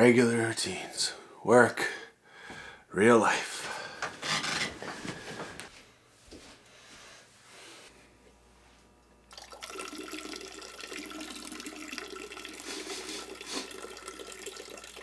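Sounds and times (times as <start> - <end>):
water running in a stream: 9.3 - 15.0.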